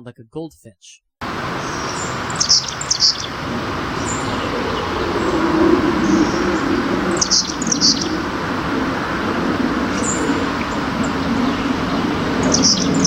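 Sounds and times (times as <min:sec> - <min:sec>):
steady low rumble: 0:03.4 - 0:13.0.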